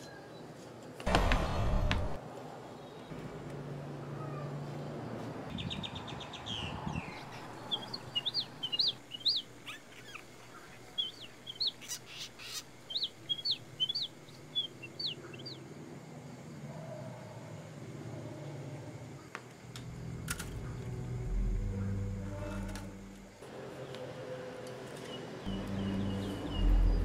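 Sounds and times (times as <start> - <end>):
bird chirping and trilling: 5.6 - 15.6.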